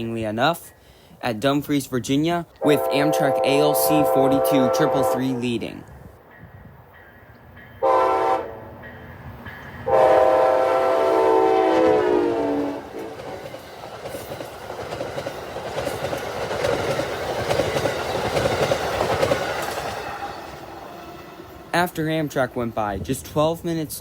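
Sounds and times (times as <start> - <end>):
train horn blasts: 2.6 - 5.7, 7.8 - 8.8, 9.8 - 13.2
train wheels clicking over rail joints: 12.8 - 24.0.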